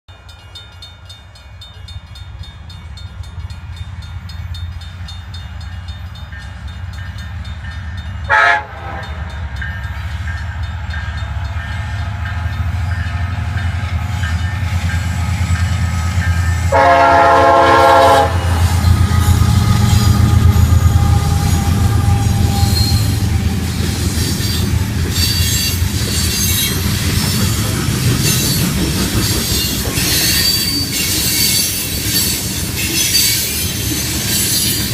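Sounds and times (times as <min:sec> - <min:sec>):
locomotive engines rumbling: 0:00.2 - 0:34.9
train horn blast: 0:08.3 - 0:09.4, 0:15.2 - 0:23.6
high wheel squeals: 0:18.6 - 0:27.6, 0:28.2 - 0:34.9.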